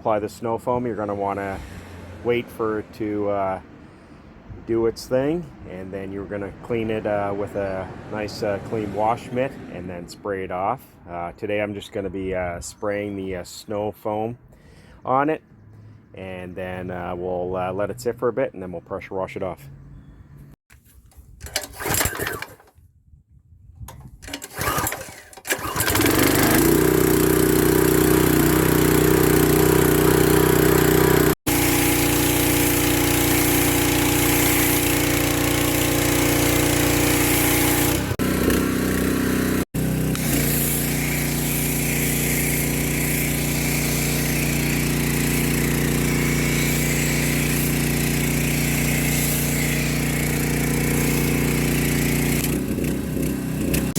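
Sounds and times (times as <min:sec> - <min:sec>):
small engine running: 0:24.4 - 0:53.9
water spraying hiss: 0:28.6 - 0:38.1, 0:40.2 - 0:52.5.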